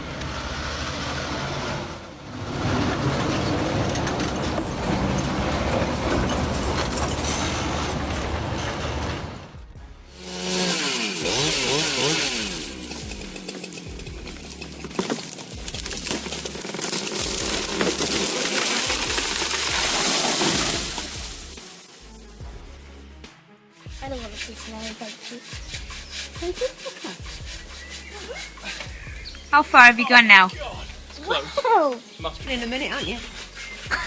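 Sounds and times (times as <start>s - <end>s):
engine-like sound: 0.0s - 21.6s
background music: 0.0s - 34.0s
chainsaw cutting wood: 10.2s - 21.9s, 24.2s - 29.0s.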